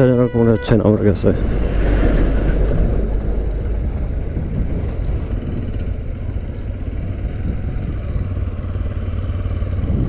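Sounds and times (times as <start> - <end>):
wind and road rushing noise: 0.0 - 10.0
motorcycle engine running: 2.5 - 10.0.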